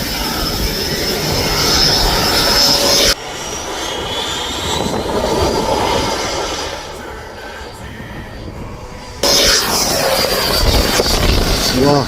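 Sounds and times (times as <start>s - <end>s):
electric ducted fans whining: 0.0s - 12.0s
wind rumble on microphone: 0.0s - 12.0s.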